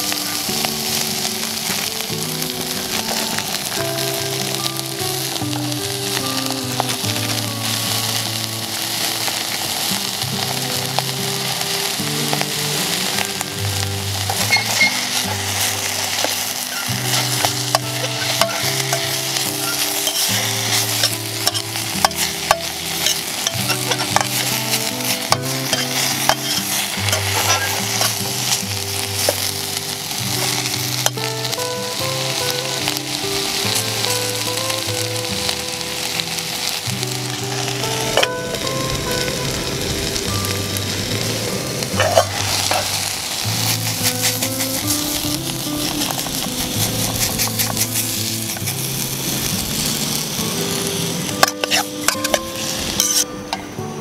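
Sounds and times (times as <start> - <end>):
food sizzling in a metal cup: 0.0 - 53.7.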